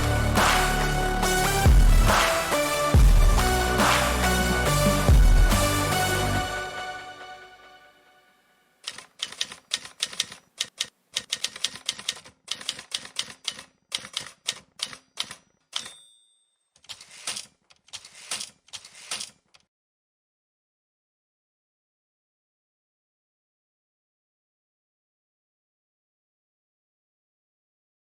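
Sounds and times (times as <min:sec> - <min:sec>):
background music: 0:00.0 - 0:08.6
typewriter keys clacking: 0:08.8 - 0:16.0, 0:16.7 - 0:19.7
typewriter bell ding: 0:11.5 - 0:17.5.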